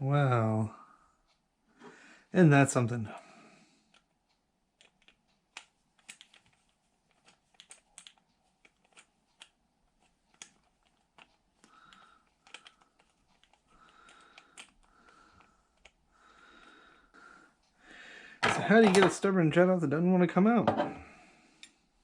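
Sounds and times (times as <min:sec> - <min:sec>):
metal tools clicking and tapping: 0:18.4 - 0:19.3.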